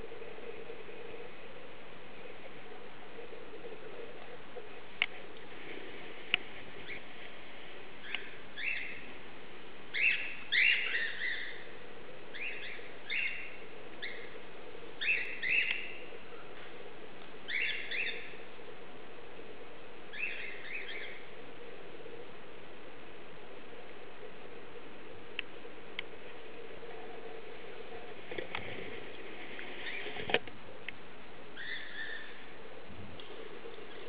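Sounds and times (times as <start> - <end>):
faint hum: 0.0 - 34.0
small birds chirping: 6.4 - 7.2, 7.9 - 9.2, 9.9 - 18.5, 20.0 - 21.4, 31.5 - 32.6.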